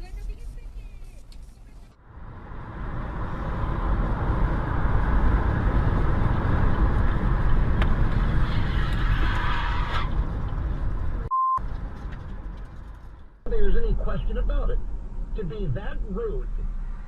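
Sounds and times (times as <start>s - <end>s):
car engine and road rumble: 0.0s - 17.0s
short single-pitched beep: 11.3s - 11.6s.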